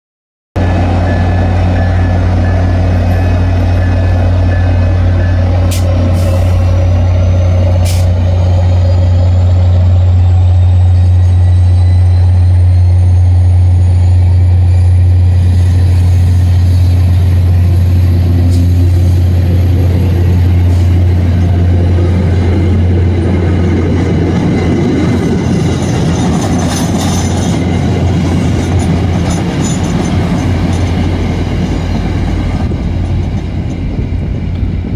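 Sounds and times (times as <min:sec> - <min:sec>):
diesel locomotive engine drone: 0:00.6 - 0:34.9
high whine: 0:00.6 - 0:34.9
train wheels clattering on rails: 0:01.1 - 0:09.9, 0:15.5 - 0:34.9.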